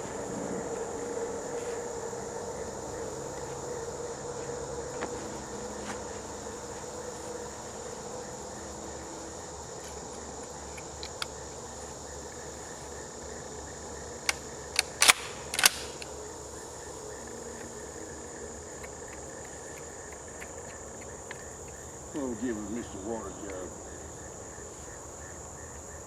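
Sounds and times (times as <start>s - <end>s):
insects droning: 0.0s - 26.0s
shotgun mechanical clicks: 14.2s - 16.2s.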